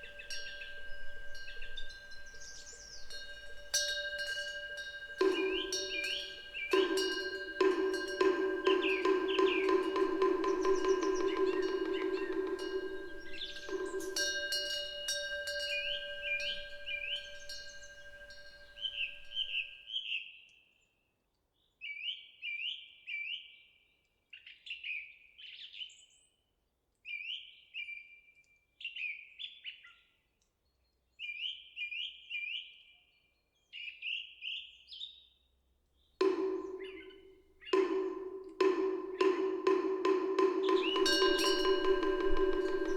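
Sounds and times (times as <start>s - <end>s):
songbird calling: 0.0s - 19.7s, 36.2s - 42.9s.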